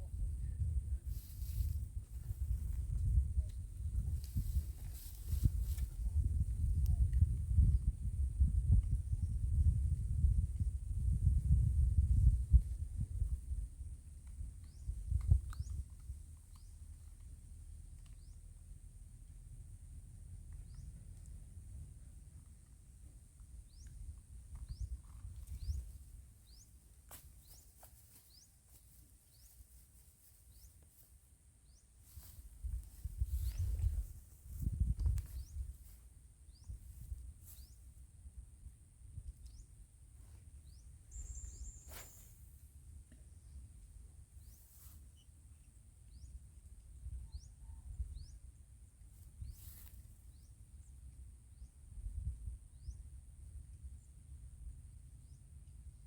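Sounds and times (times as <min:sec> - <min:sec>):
steady high-pitched hiss: 0:00.0 - 0:07.0, 0:25.9 - 0:47.0
bird chirping: 0:40.6 - 0:42.2
high-pitched insect hiss: 0:41.1 - 0:42.5.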